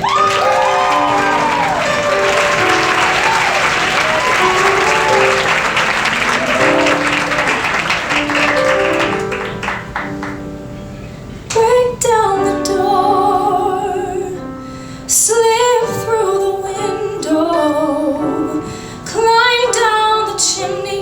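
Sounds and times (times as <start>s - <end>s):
audience applauding: 0.0s - 10.6s
live instrumental music: 0.3s - 11.2s.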